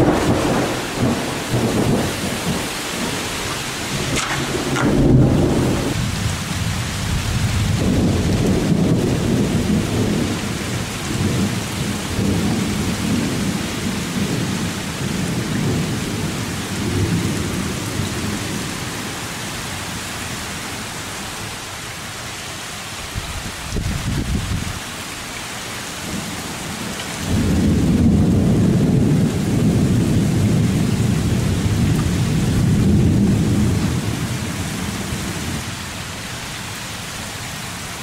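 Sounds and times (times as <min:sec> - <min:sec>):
thunder rumbling: 0:00.0 - 0:19.2, 0:26.0 - 0:35.7
heavy rain hissing: 0:00.0 - 0:38.0.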